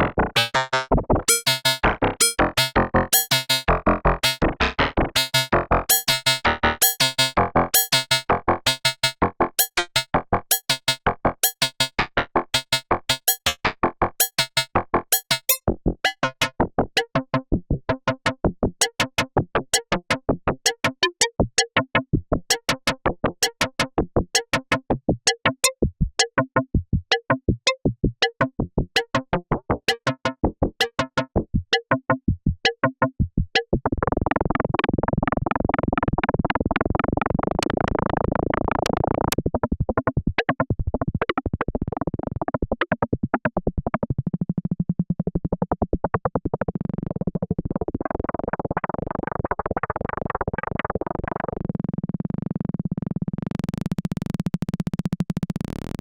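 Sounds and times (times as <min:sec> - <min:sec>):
synthesizer plucked notes: 0:00.0 - 0:22.0, 0:24.4 - 0:34.9.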